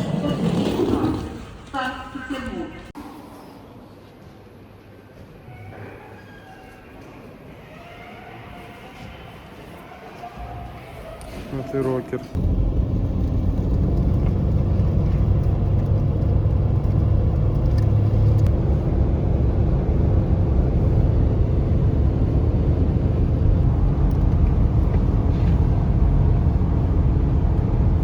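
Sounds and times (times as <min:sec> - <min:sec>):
car engine and road noise: 0:12.3 - 0:28.0.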